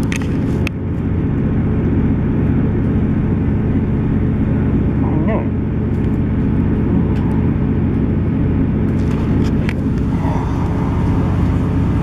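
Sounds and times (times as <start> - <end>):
diesel engine rumble: 0.0 - 12.0
wheels on rails: 8.9 - 12.0.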